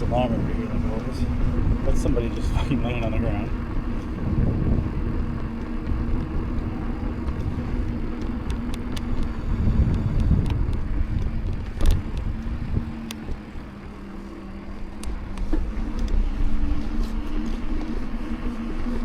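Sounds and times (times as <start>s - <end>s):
bicycle tyres rumbling: 0.0s - 19.0s
steady low hum: 0.0s - 19.0s
wind on microphone: 0.0s - 19.0s.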